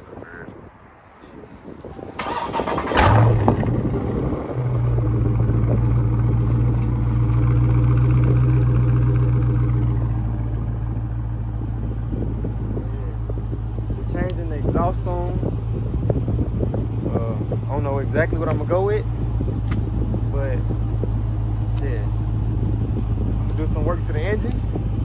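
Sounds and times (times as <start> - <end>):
starter cranking: 2.2 - 3.8
car engine revving and idling: 2.2 - 25.0.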